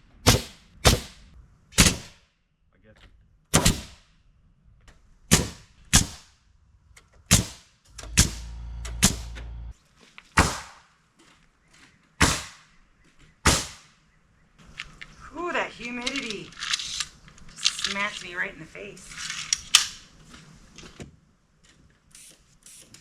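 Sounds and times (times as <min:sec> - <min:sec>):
nails hammered into lumber: 0:00.3 - 0:01.2, 0:03.6 - 0:04.0, 0:05.3 - 0:06.2, 0:07.3 - 0:09.4, 0:10.4 - 0:10.8, 0:12.2 - 0:12.6, 0:13.4 - 0:13.9
low steady hum: 0:07.9 - 0:09.7.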